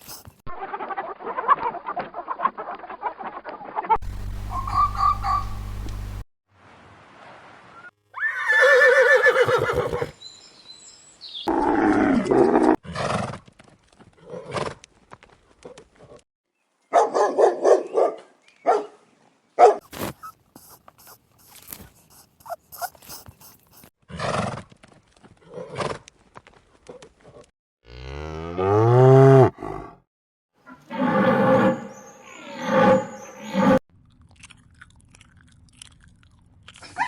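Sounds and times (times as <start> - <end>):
large animal calling: 4.1 - 5.8.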